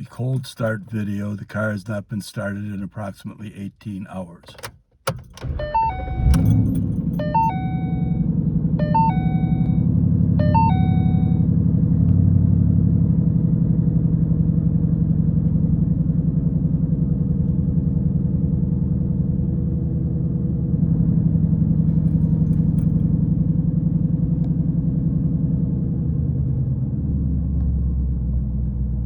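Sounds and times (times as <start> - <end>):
car engine starting and idling: 0.0 - 29.0
dashboard warning chime: 5.3 - 11.6.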